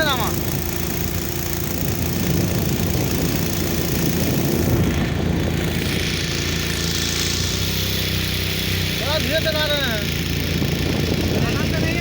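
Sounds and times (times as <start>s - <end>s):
motorboat engine running: 0.0s - 12.0s.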